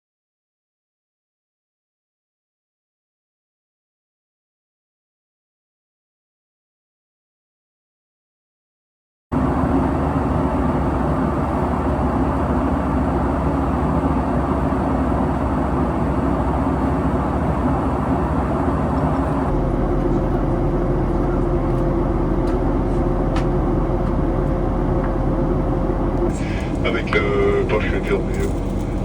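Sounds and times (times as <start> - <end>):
aircraft cabin rumble: 9.3 - 29.0
faint steady hum: 9.4 - 29.0.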